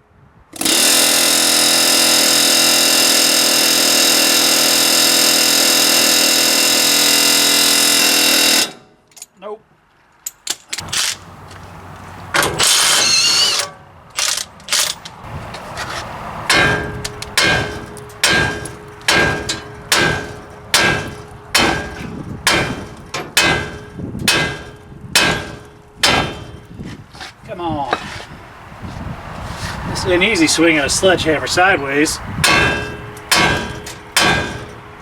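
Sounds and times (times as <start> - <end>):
hammer striking steel: 16.5 - 26.7, 32.4 - 34.9
scattered knocks: 16.5 - 26.7, 32.4 - 34.8.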